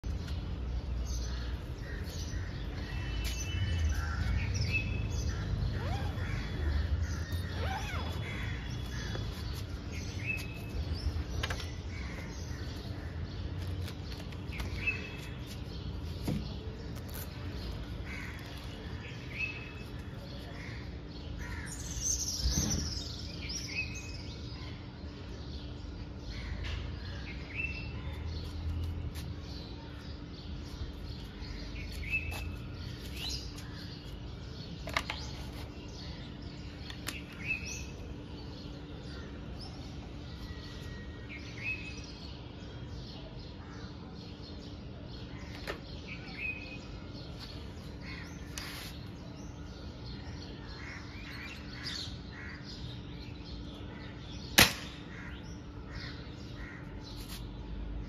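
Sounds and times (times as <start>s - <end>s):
birds chirping and calling: 0.0s - 58.0s.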